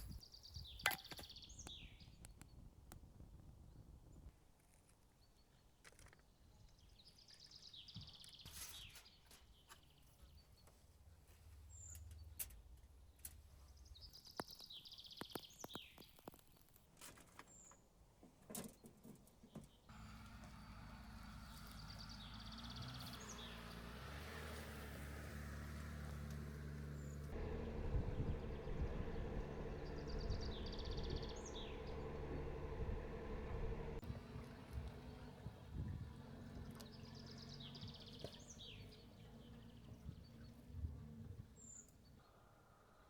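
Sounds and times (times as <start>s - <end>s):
songbirds chirping: 0.0s - 2.8s, 3.5s - 43.0s
vehicle engine hum: 19.9s - 42.2s.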